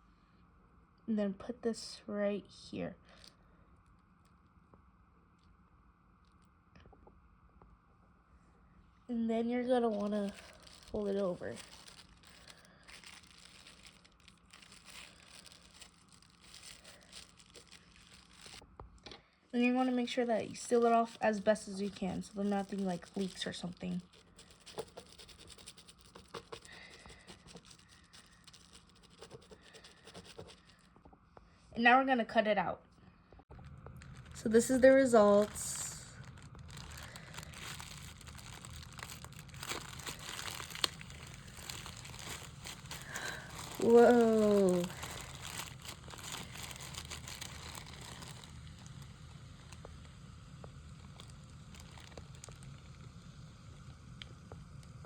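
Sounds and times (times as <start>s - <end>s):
plastic wrap crinkling: 9.7s - 18.7s, 19.6s - 30.9s, 33.5s - 53.2s.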